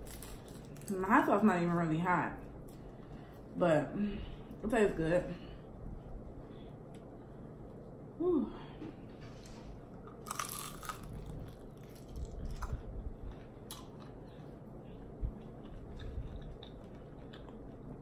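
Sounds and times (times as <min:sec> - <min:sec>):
crunching and chewing fried chicken: 0:00.0 - 0:01.0, 0:09.9 - 0:18.0.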